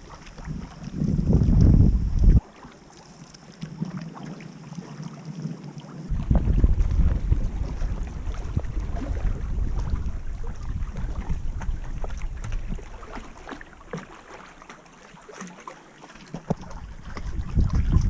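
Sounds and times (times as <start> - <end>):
wind rumbling on microphone: 0.0 - 2.5, 6.0 - 13.9, 16.5 - 18.0
water lapping around a canoe: 0.0 - 18.0.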